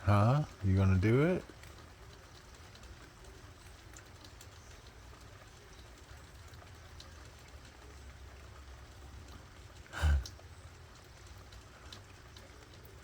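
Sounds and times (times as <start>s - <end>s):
faint hiss: 9.4s - 10.9s.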